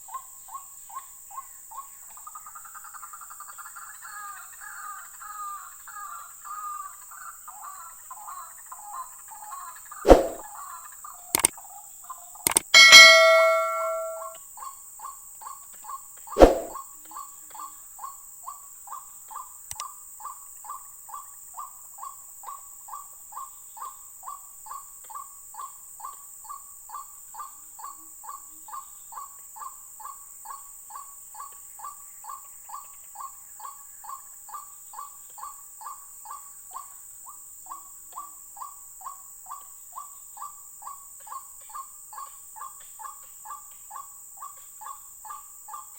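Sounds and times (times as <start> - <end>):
ringing metallic clang: 12.8 - 14.3, 16.4 - 16.7.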